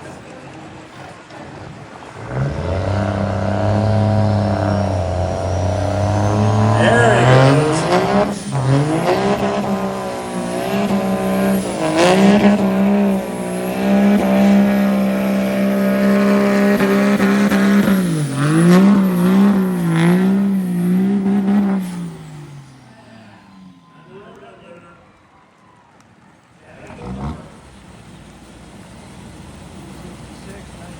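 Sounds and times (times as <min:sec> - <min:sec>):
diesel truck engine at full throttle: 0:00.0 - 0:24.4, 0:26.6 - 0:30.9.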